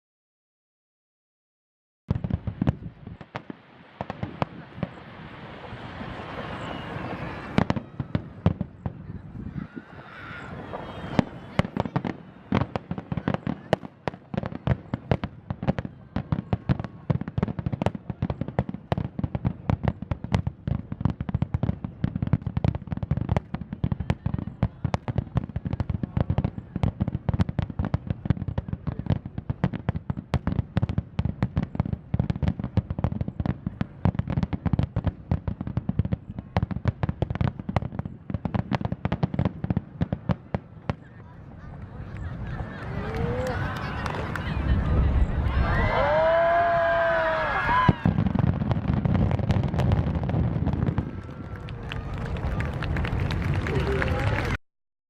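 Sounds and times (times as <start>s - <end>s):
distant fireworks barrage: 2.1s - 54.5s.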